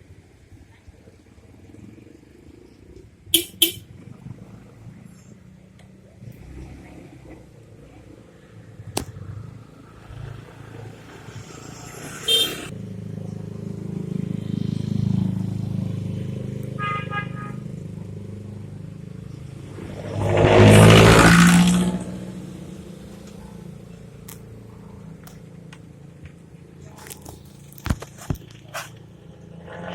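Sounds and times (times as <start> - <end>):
car engines passing: 0.0 - 29.9
short horn toots: 3.4 - 3.9, 12.2 - 12.7
tyres hissing on wet road: 9.8 - 12.7.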